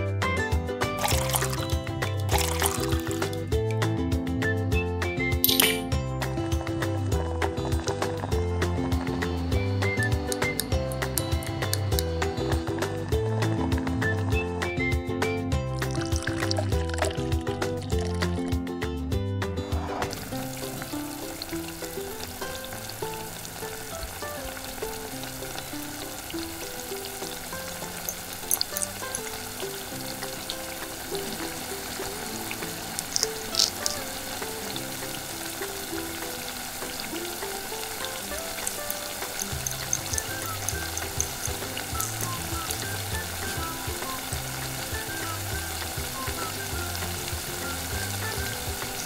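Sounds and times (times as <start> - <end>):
food sizzling in a pan: 0.9 - 3.6, 6.2 - 14.2, 15.8 - 18.3, 19.8 - 49.0
utensil clicking against pan: 10.2 - 12.1, 27.8 - 29.8, 33.0 - 34.2, 38.0 - 42.8.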